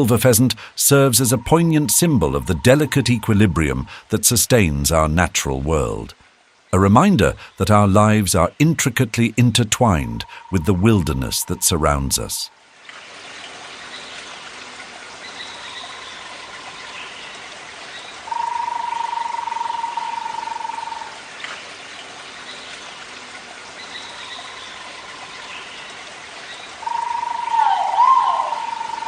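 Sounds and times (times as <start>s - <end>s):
running water: 0.0s - 29.0s
whistle-like animal call: 26.9s - 29.0s.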